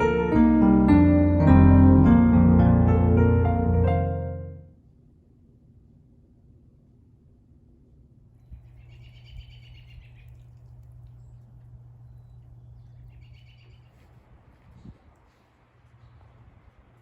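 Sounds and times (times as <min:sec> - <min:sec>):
steady low hum: 0:01.6 - 0:17.0
small bird chattering: 0:08.5 - 0:10.5.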